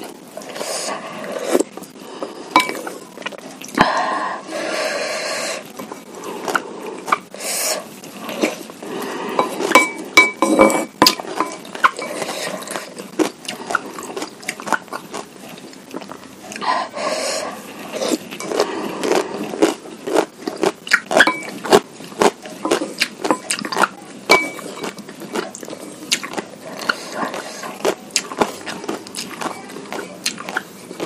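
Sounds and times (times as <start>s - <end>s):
chewing and biting food: 10.7s - 16.7s, 17.8s - 31.0s.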